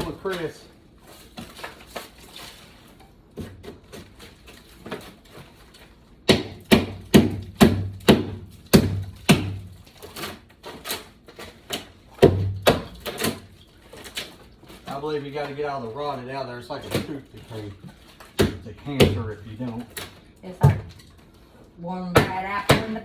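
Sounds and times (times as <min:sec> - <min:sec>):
hammer striking wooden floor: 0:06.3 - 0:09.7.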